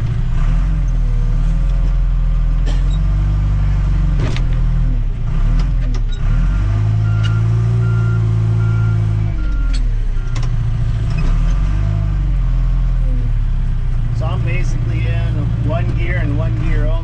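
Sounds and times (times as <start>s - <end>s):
diesel engine working: 0.0s - 17.0s
engine whine: 0.0s - 17.0s
backup alarm beeping: 7.0s - 10.4s.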